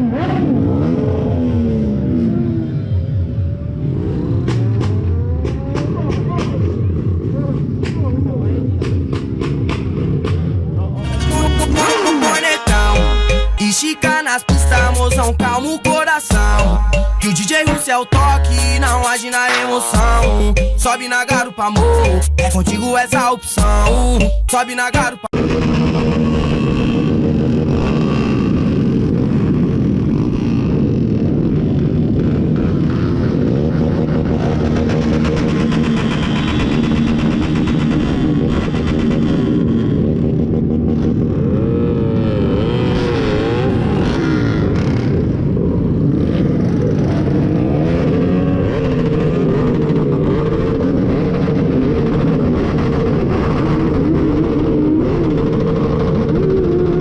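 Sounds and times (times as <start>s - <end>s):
motorcycle engines revving: 0.0s - 11.8s, 25.6s - 57.0s.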